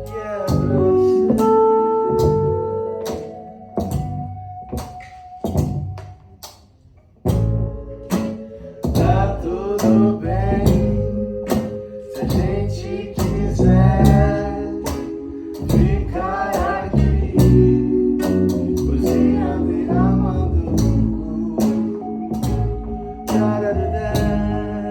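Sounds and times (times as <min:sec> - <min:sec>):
person singing: 0:08.8 - 0:24.9.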